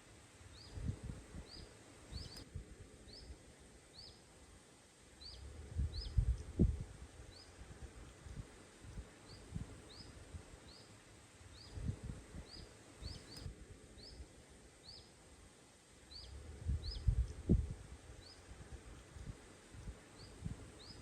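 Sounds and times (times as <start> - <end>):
small bird chirping: 0.5 - 2.4, 8.9 - 14.2, 14.8 - 15.2, 16.1 - 17.5, 20.1 - 21.0.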